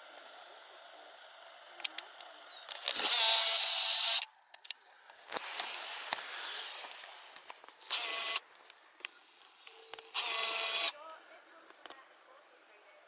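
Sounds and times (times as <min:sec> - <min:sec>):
camera zoom motor whirring: 0:01.1 - 0:04.4, 0:07.8 - 0:08.5, 0:09.1 - 0:11.0.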